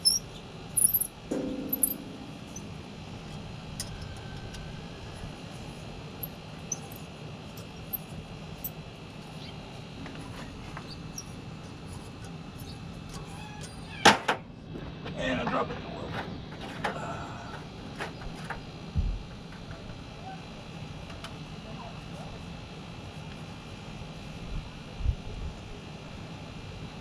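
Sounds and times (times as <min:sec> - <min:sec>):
insect chirring: 0:00.0 - 0:01.1.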